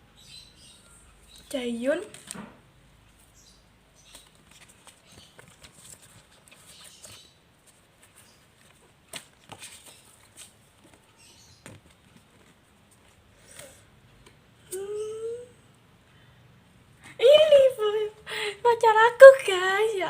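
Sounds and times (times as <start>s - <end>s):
plastic cards rustling: 1.3s - 2.6s, 3.2s - 13.8s.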